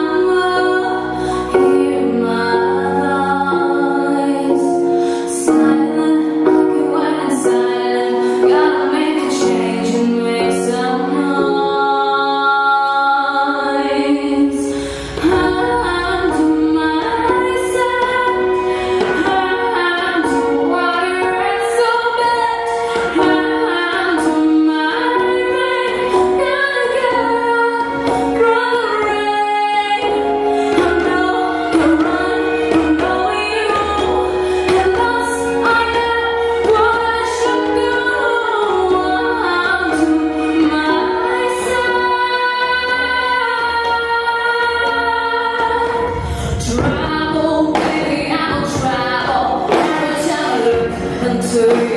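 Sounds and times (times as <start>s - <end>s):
backing track: 0.0s - 51.9s
woman singing pop song: 0.0s - 51.9s
beat: 45.8s - 51.9s.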